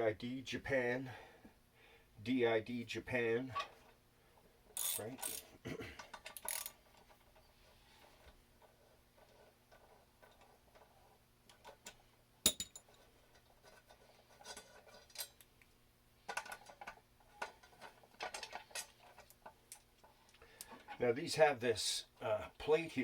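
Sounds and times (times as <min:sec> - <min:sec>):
metal tools clinking: 0:04.8 - 0:05.5, 0:12.5 - 0:13.0.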